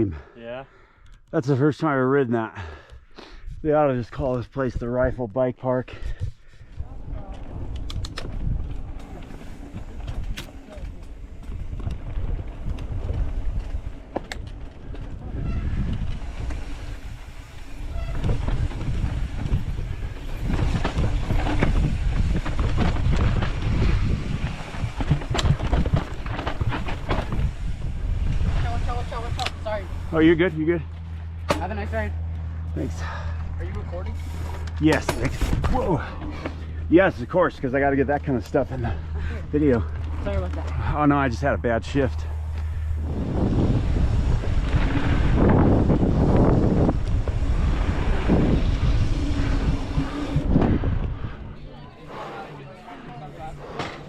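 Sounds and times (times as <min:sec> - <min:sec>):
bike clicking and rattling: 0:04.2 - 0:51.6
wind rushing over microphone: 0:06.0 - 0:30.8, 0:39.8 - 0:52.6
tyres rumbling on dirt: 0:06.8 - 0:54.0.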